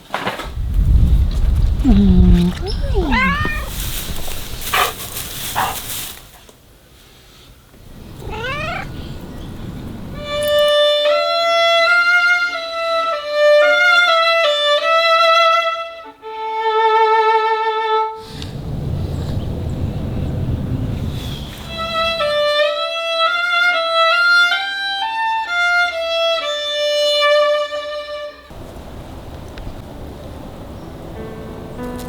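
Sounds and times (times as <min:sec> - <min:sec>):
cat meowing: 0:01.8 - 0:04.6, 0:08.0 - 0:10.8
violin slow melody with vibrato: 0:10.1 - 0:18.2, 0:21.7 - 0:28.5.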